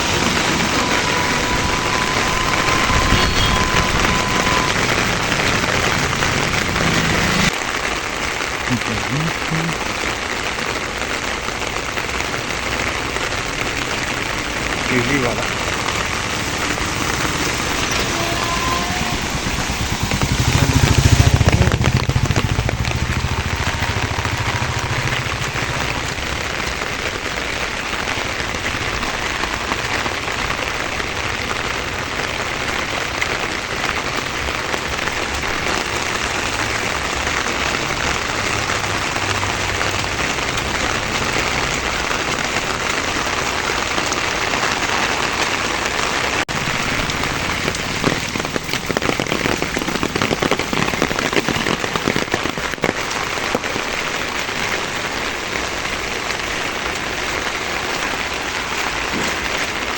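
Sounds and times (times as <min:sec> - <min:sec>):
low rumble: 0:00.0 - 0:07.6, 0:13.0 - 0:30.7
heavy rain falling: 0:00.0 - 0:59.9.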